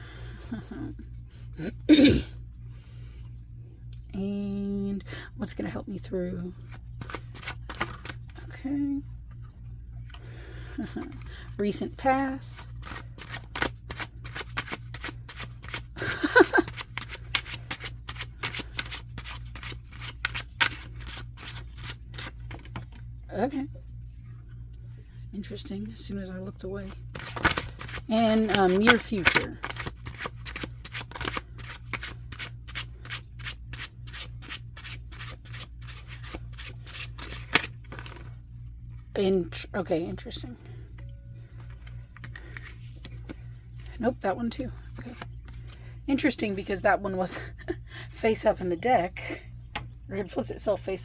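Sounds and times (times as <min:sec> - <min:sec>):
cards being shuffled: 0:06.5 - 0:08.5, 0:10.8 - 0:11.6, 0:12.6 - 0:23.0, 0:26.8 - 0:38.4, 0:41.6 - 0:44.0, 0:44.7 - 0:45.8.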